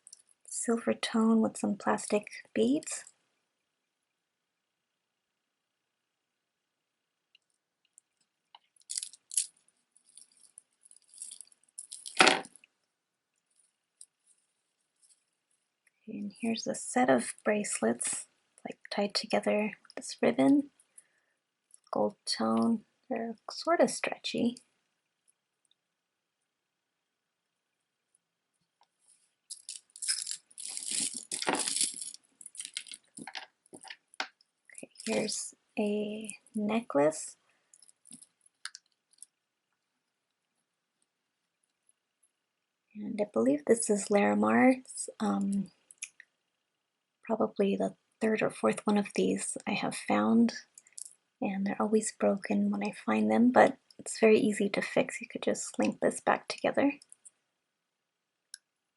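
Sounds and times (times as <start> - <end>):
jewelry clinking and jangling: 8.8 - 12.5, 29.5 - 34.0.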